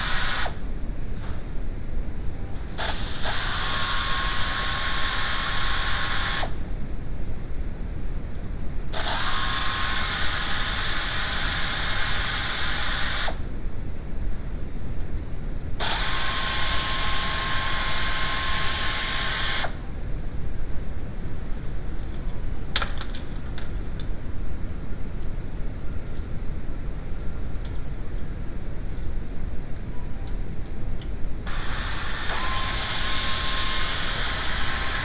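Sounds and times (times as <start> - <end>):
power tool hissing and whining: 0.0 - 0.6, 2.8 - 6.6, 9.0 - 13.4, 15.8 - 19.8, 31.5 - 35.0.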